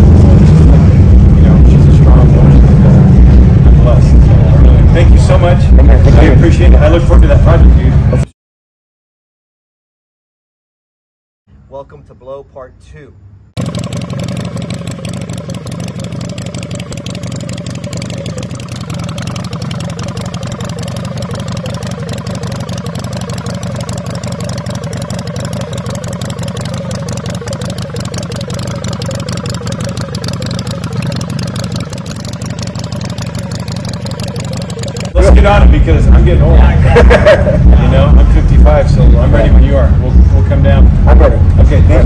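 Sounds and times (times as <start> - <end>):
motorcycle engine idling: 13.6 - 42.0.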